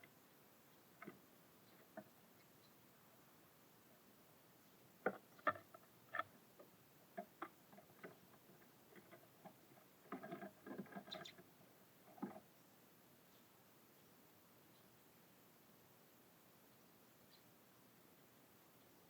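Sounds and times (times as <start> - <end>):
birds pecking and landing taps: 1.0 - 2.2, 5.0 - 12.5.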